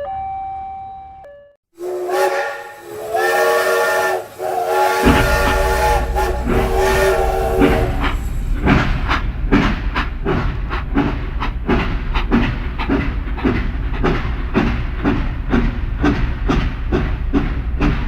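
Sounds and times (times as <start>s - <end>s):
steam whistle: 1.8s - 8.4s
rail clatter: 1.8s - 18.0s
train chuffing: 1.8s - 18.0s
low rumble: 4.3s - 14.0s.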